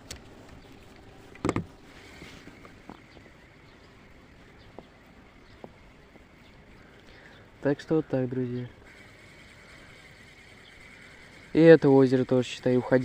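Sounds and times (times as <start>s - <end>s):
inflatable boat creaking and knocking: 1.3s - 3.4s.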